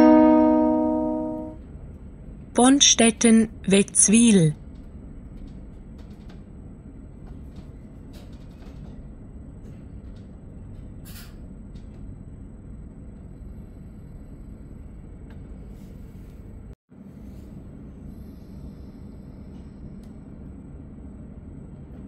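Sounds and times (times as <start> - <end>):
train rumble inside coach: 4.6 - 12.6.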